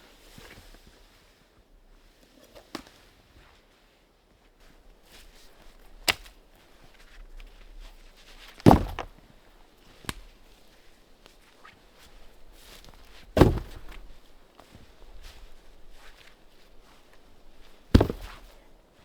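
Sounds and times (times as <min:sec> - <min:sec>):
heavy thuds: 0:08.6 - 0:09.2, 0:12.2 - 0:14.3, 0:15.1 - 0:18.7
sharp knocks: 0:08.7 - 0:09.1, 0:13.4 - 0:14.0, 0:17.9 - 0:18.5.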